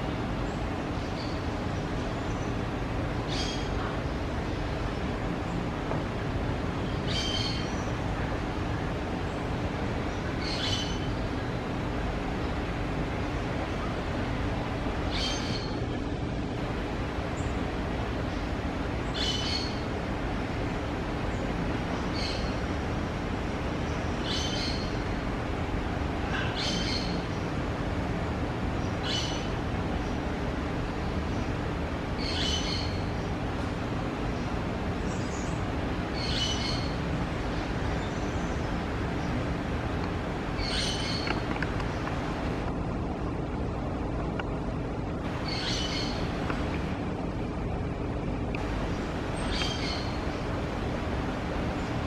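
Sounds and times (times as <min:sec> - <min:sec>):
steady rushing noise: 0:00.0 - 0:32.2, 0:32.8 - 0:52.0
steady background noise: 0:00.0 - 0:52.0.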